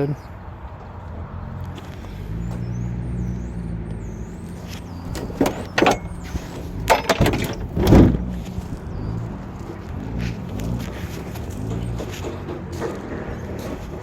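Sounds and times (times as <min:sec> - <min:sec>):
birds chirping: 0:00.0 - 0:14.0
low engine hum: 0:00.4 - 0:14.0
sharp knocks: 0:05.1 - 0:08.3.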